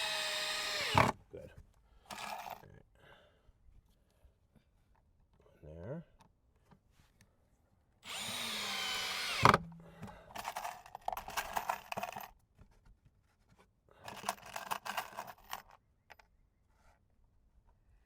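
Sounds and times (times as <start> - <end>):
power drill driving screws: 0.0 - 1.2, 8.0 - 9.6.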